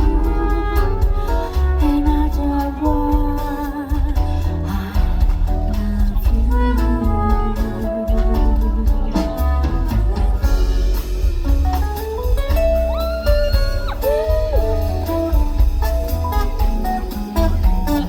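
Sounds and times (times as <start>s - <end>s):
bass: 0.0s - 18.0s
drums: 0.0s - 18.0s
guitar solo: 6.9s - 18.0s.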